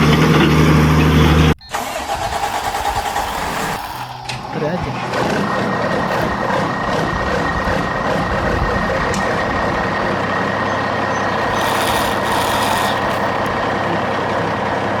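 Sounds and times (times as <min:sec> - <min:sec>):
toy truck engine: 0:00.0 - 0:15.0.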